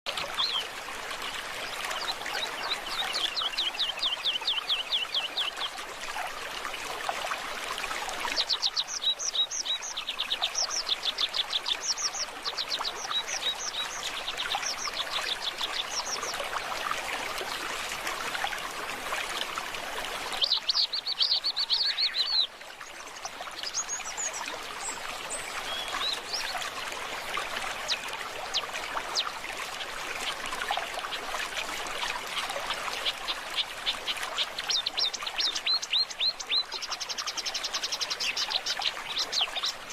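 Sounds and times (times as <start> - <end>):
stream water flowing: 0.1 - 39.9
songbirds singing: 0.2 - 5.8, 8.2 - 16.8, 20.3 - 22.6, 23.5 - 26.8, 27.7 - 39.9.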